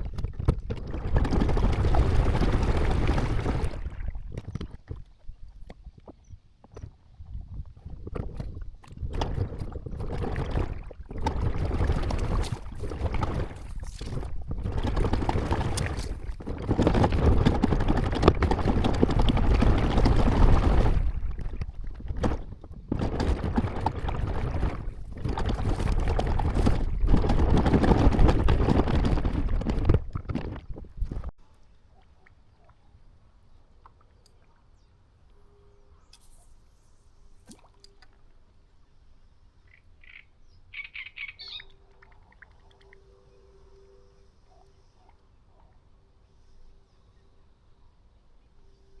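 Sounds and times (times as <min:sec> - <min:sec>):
rushing water: 0:00.0 - 0:04.9, 0:09.0 - 0:31.3
wind noise on microphone: 0:00.0 - 0:31.4.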